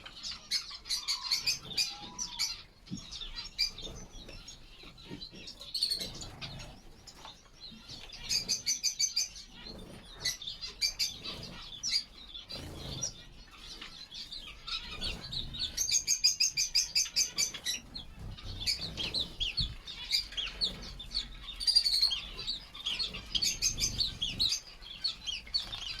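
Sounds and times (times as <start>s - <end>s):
finches chirping: 0.0s - 26.0s
wings flapping: 17.1s - 26.0s.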